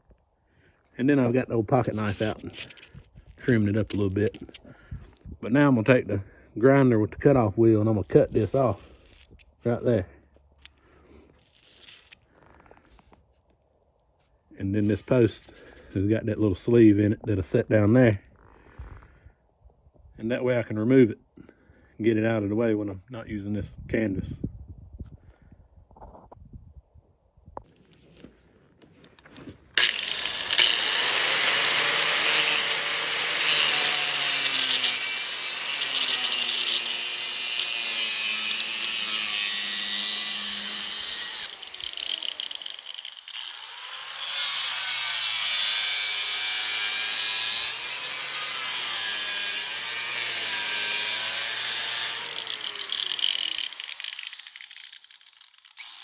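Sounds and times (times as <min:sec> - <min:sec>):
angle grinder cutting: 0:01.2 - 0:04.7, 0:08.0 - 0:12.2, 0:14.8 - 0:16.0, 0:29.8 - 0:56.0.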